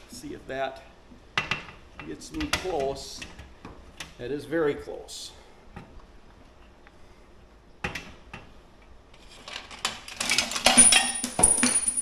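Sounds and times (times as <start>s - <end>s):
metal hardware clicking and rattling: 9.4s - 12.0s.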